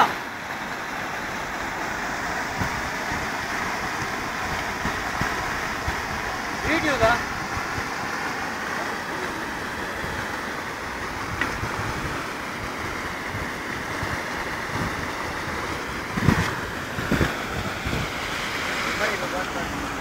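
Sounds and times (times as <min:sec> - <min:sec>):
floodwater rushing: 0:00.0 - 0:20.0
wind buffeting microphone: 0:02.5 - 0:07.9, 0:10.9 - 0:18.8.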